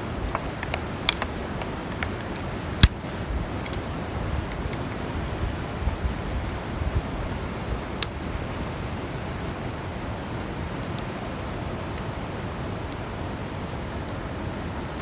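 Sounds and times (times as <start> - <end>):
campfire crackling: 0.0 - 15.0
sharp fire pops: 0.3 - 5.2, 7.3 - 12.2.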